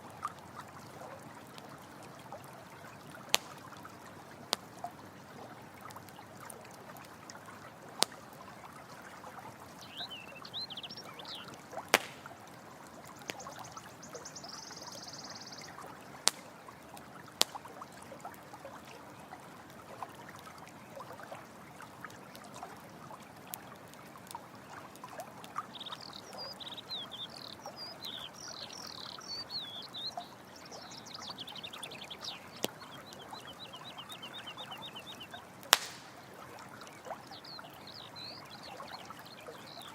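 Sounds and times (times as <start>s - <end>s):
campfire crackling and popping: 0.0s - 26.4s, 30.1s - 39.2s
running water trickling: 0.0s - 39.9s
high chirping calls: 9.8s - 12.4s, 13.3s - 15.8s, 25.7s - 36.3s, 37.3s - 39.9s.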